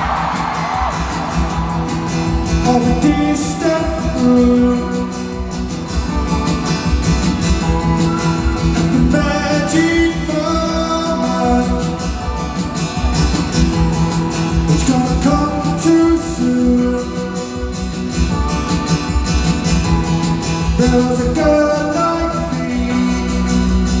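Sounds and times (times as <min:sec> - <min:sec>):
rock band playing: 0:00.0 - 0:24.0
person singing: 0:02.5 - 0:06.3, 0:08.0 - 0:13.2, 0:14.6 - 0:17.9, 0:20.7 - 0:24.0.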